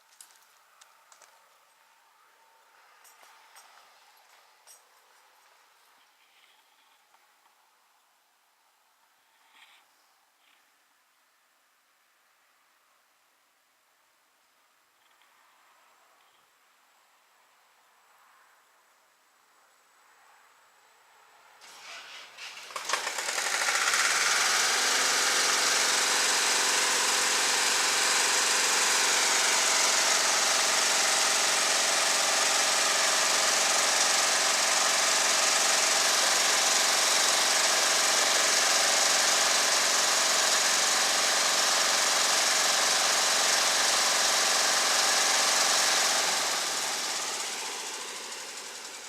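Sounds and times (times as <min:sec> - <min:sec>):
small gasoline engine running: 0:21.6 - 0:49.0.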